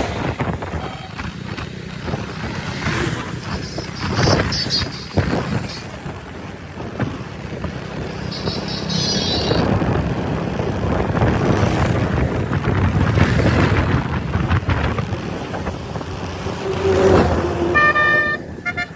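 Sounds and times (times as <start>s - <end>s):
wind rushing over microphone: 0.0s - 8.4s, 9.4s - 18.9s
motorcycle engine rumble: 0.0s - 18.9s
vehicle horn: 3.4s - 5.8s, 8.2s - 9.8s, 17.4s - 18.9s.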